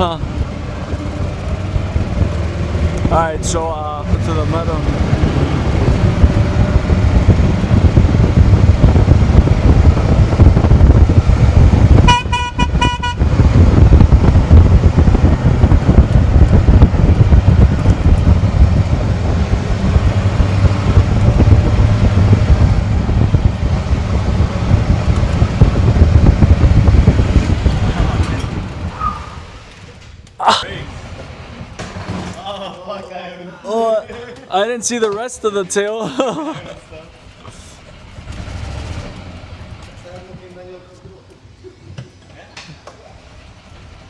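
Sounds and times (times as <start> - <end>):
small vehicle driving: 0.0 - 44.0
horn toot: 12.0 - 13.4.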